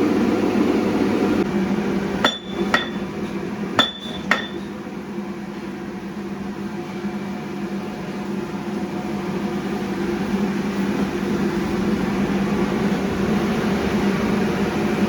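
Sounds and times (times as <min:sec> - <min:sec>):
machinery hum: 0:00.0 - 0:15.0
hammer striking steel: 0:02.2 - 0:04.7.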